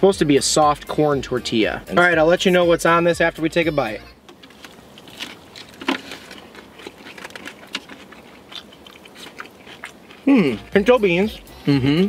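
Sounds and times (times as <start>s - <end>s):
people chewing tacos: 3.8s - 12.0s
crunches: 4.2s - 10.8s.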